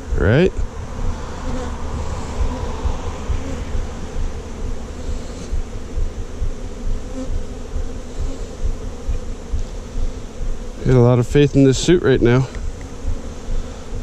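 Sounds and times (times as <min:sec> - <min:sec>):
low rumble: 0:00.0 - 0:07.9
honeybees buzzing: 0:00.0 - 0:14.0.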